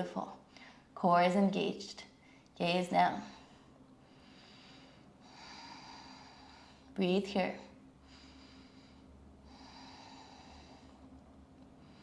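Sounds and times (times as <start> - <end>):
faint breathing: 3.2 - 7.0, 7.6 - 12.0.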